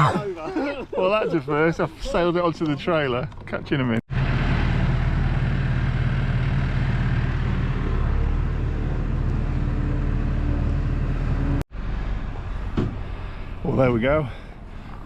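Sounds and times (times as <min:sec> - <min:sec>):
vehicle engine humming: 0:04.1 - 0:15.0.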